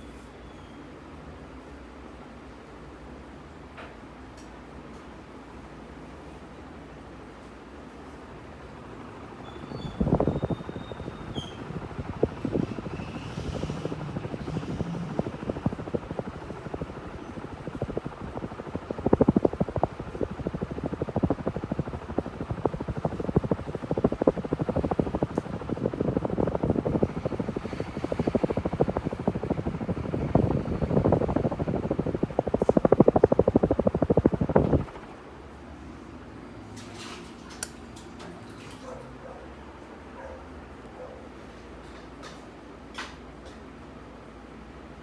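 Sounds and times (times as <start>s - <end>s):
ceiling fan whirring: 0.0s - 45.0s
fan clattering: 8.8s - 35.1s.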